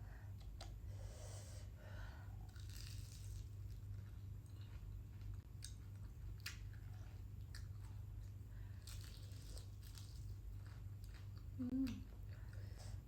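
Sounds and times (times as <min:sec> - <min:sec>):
steady low hum: 0:00.0 - 0:13.0
person chewing crunchy food: 0:02.4 - 0:12.6.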